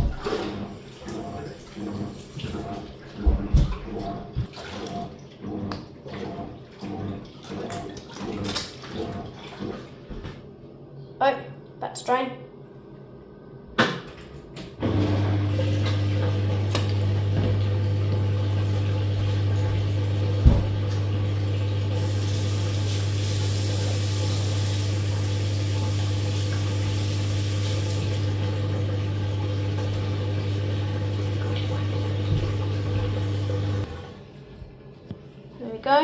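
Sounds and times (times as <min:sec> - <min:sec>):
washing machine drain pump humming: 0:00.0 - 0:10.3, 0:14.6 - 0:34.8
water rushing: 0:14.8 - 0:34.0.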